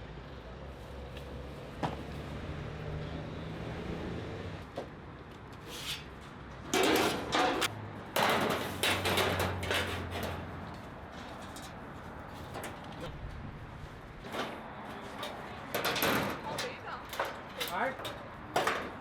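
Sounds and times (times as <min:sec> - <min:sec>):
equipment clattering and scraping: 0:05.7 - 0:19.0.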